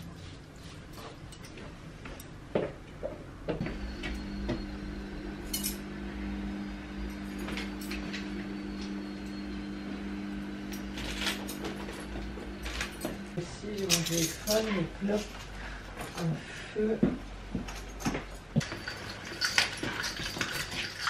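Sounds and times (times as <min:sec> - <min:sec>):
low hum: 0:03.5 - 0:14.4
hangers clinking on metal rack: 0:05.5 - 0:05.8, 0:13.7 - 0:15.4.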